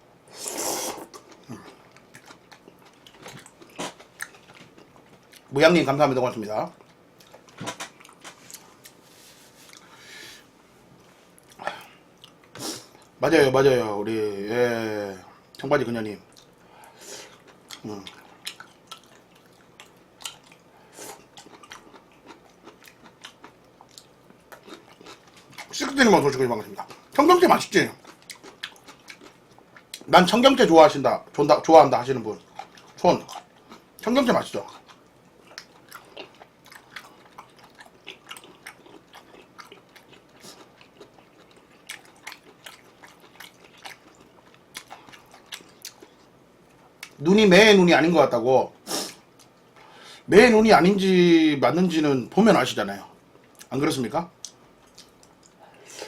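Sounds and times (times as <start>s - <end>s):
person chewing food: 0.4s - 5.5s, 6.7s - 10.1s, 11.3s - 13.2s, 16.3s - 26.0s, 27.9s - 30.1s, 32.3s - 47.2s, 54.4s - 56.0s.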